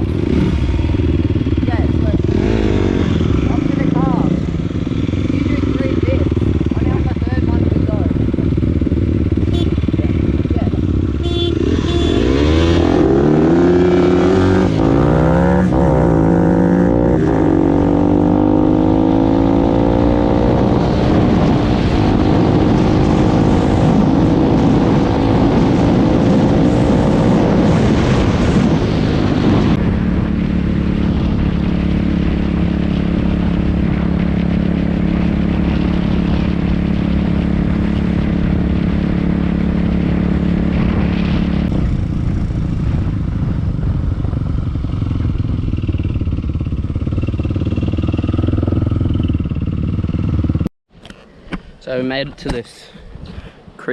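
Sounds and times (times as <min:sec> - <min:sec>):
dirt bike engine revving: 0:00.0 - 0:29.8.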